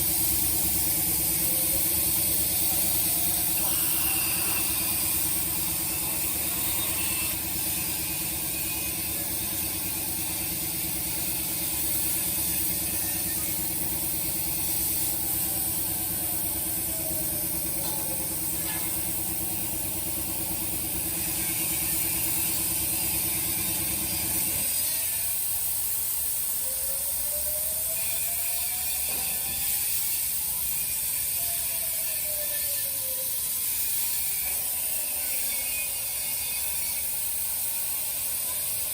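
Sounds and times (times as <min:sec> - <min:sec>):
low mechanical hum: 0:00.0 - 0:38.9
plasma cutter hissing: 0:00.0 - 0:38.9
torch whines: 0:00.0 - 0:38.9.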